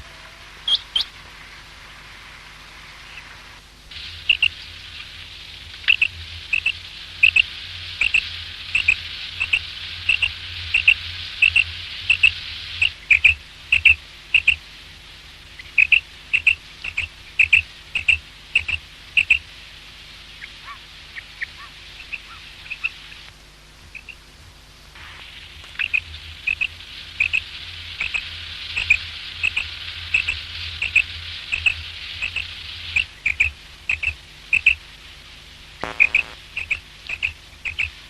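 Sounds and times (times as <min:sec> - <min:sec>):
steady hiss: 0:00.0 - 0:38.0
quail calling: 0:04.2 - 0:04.6, 0:05.8 - 0:14.6, 0:15.6 - 0:19.4, 0:20.4 - 0:23.2, 0:23.9 - 0:24.2, 0:25.7 - 0:34.8, 0:35.8 - 0:37.9.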